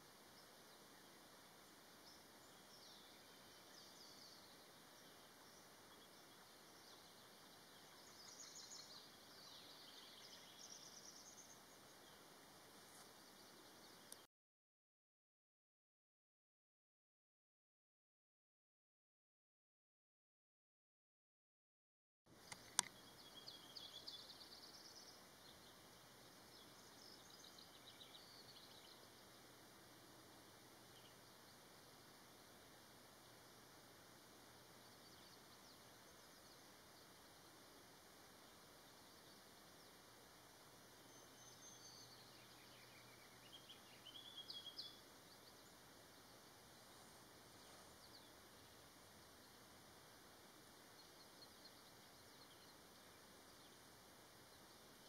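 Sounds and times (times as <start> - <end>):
quiet hiss: 0.0 - 14.3, 22.3 - 55.0
birds chirping: 0.2 - 14.3, 22.4 - 55.0
sharp click: 22.5 - 23.0.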